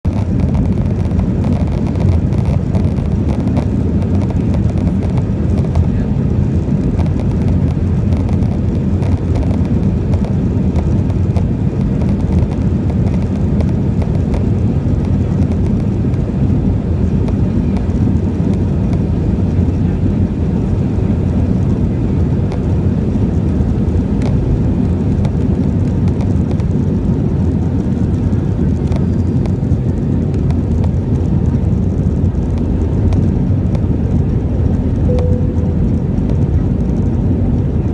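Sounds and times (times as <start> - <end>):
jet engines roaring in cabin: 0.0 - 37.9.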